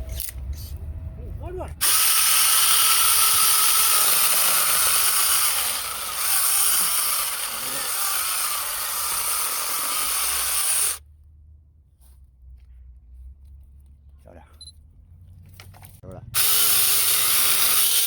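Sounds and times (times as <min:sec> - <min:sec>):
chainsaw cutting wood: 0:01.8 - 0:11.0, 0:16.4 - 0:18.0.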